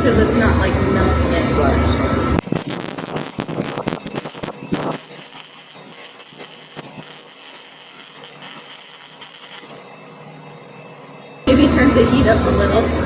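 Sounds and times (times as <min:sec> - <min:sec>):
welding arc crackling: 0:00.6 - 0:09.9.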